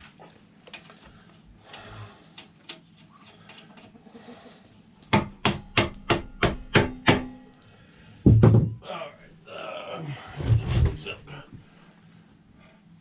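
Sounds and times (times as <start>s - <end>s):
hammer striking metal: 5.1s - 7.6s.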